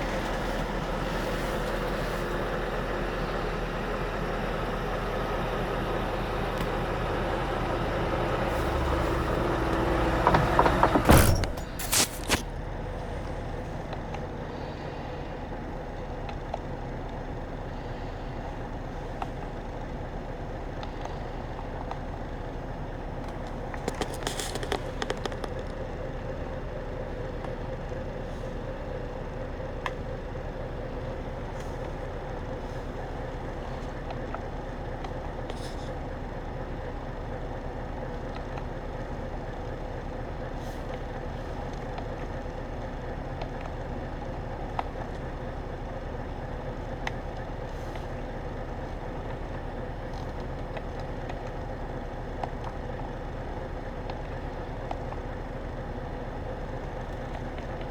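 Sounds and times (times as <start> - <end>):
diesel truck engine idling: 0.0 - 57.9
clicks and rattles: 23.7 - 25.8.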